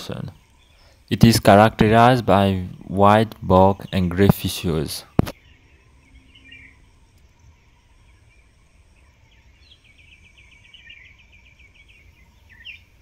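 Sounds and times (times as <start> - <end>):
bird chirps and trill: 0.0 - 13.0.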